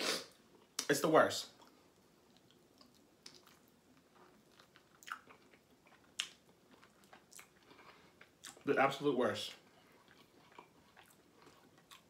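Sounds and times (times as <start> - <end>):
person chewing food: 1.5 - 8.7, 9.6 - 12.0.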